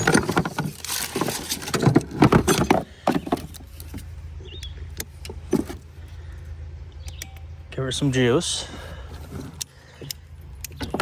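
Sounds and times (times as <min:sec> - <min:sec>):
plastic and metal parts rattling: 0:00.0 - 0:04.2, 0:05.0 - 0:05.9, 0:09.1 - 0:11.0
steady low hum: 0:00.6 - 0:11.0.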